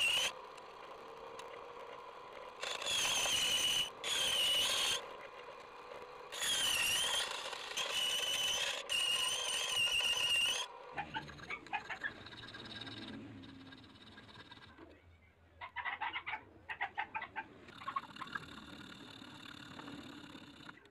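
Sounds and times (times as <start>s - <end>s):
scroll saw squealing through metal: 0.0s - 0.4s, 2.6s - 5.2s, 6.3s - 14.3s.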